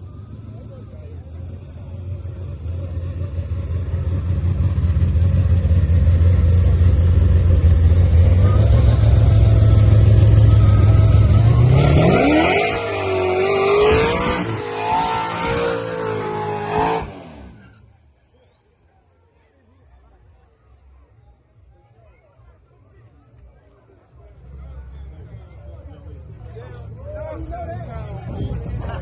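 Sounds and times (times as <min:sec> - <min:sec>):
car engine revving: 0:00.5 - 0:17.8.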